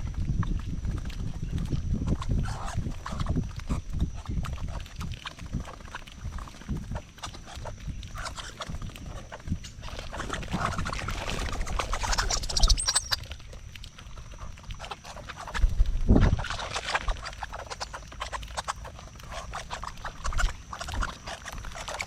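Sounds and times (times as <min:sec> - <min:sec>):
birds pecking at a feeder: 0:00.0 - 0:22.0
wings fluttering: 0:00.0 - 0:22.0.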